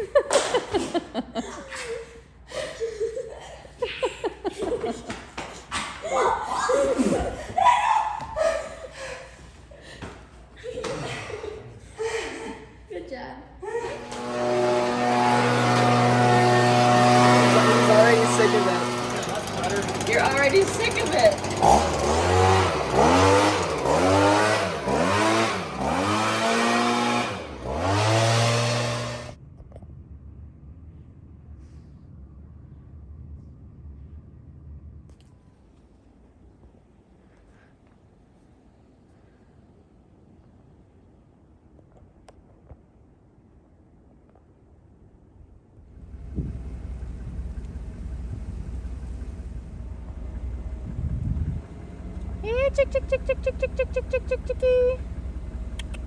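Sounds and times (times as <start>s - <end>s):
person laughing: 0.0s - 5.2s, 10.6s - 12.8s, 52.4s - 55.0s
low drone: 13.6s - 37.0s
engine revving: 13.8s - 29.4s, 45.9s - 56.0s.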